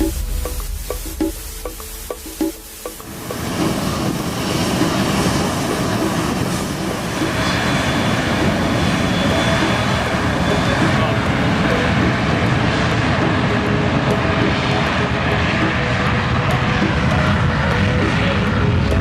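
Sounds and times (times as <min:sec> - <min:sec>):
thin high whine: 0:00.0 - 0:12.4
jet engines rushing: 0:00.0 - 0:19.0.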